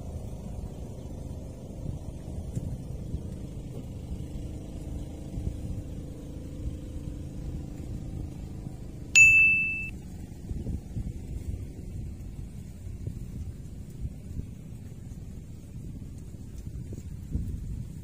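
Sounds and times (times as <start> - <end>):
wind rumble on microphone: 0.0 - 9.1, 10.0 - 18.0
bright ding: 9.2 - 9.9.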